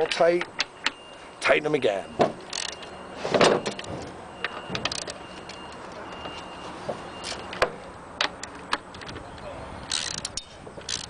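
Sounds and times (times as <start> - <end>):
ratchet wrench clicking: 2.5 - 2.8, 9.8 - 11.0.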